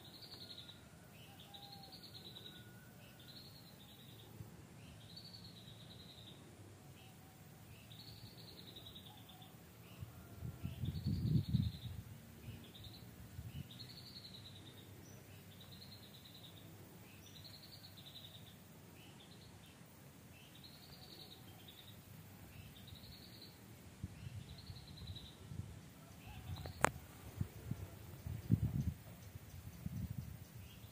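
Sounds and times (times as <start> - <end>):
low rumble on microphone: 26.4 - 30.7.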